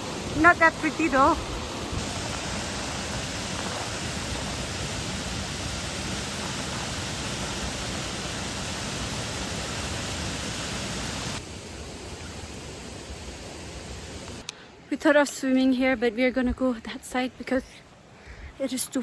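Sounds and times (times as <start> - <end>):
water rushing down waterfall: 0.0 - 14.5.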